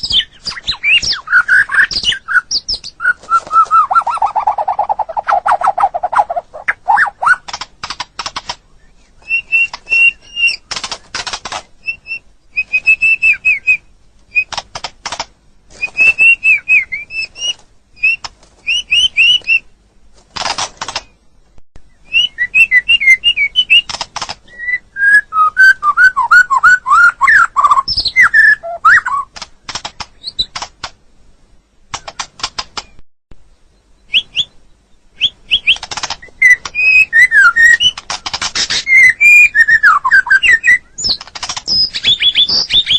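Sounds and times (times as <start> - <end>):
bird singing whistled notes: 0.0 - 7.5, 8.7 - 10.7, 11.8 - 14.5, 15.8 - 19.7, 21.8 - 23.9, 24.5 - 29.3, 32.8 - 38.0, 38.6 - 42.9
bird harsh clicking notes: 0.0 - 19.6, 20.2 - 21.2, 22.5 - 24.5, 26.5 - 31.0, 31.9 - 33.0, 35.2 - 42.9.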